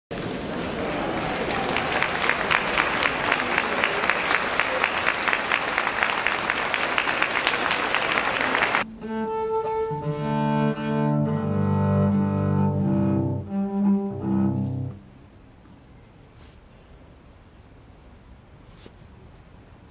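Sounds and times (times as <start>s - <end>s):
audience applause: 0.1s - 8.8s
cello bowed low notes: 8.9s - 15.2s.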